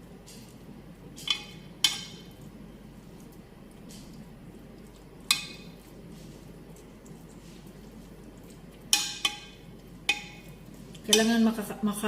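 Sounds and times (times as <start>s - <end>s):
steady low hum: 0.0s - 12.0s
metal utensil clinking on pot: 1.2s - 2.3s, 8.9s - 11.4s.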